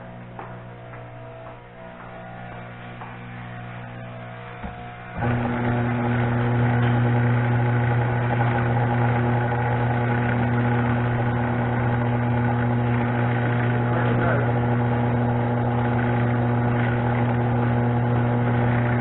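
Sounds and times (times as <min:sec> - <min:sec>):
garage door opener motor hum: 0:00.0 - 0:19.0.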